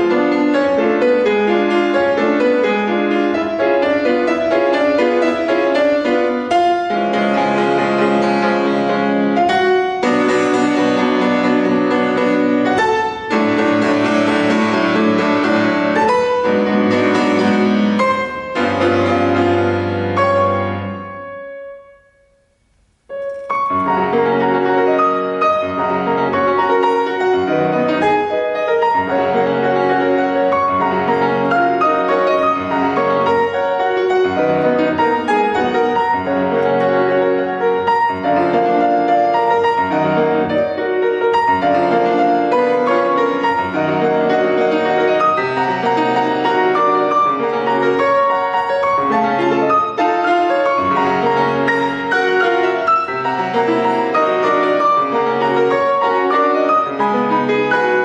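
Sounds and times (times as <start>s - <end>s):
solo classical piano: 0.0s - 58.0s.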